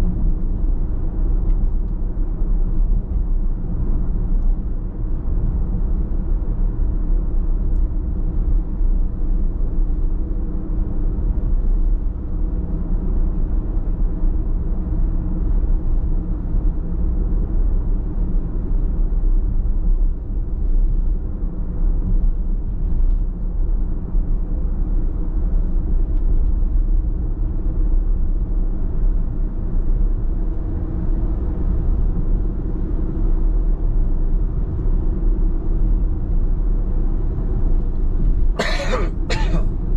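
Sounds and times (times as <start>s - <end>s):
car driving rumble: 37.6s - 39.9s.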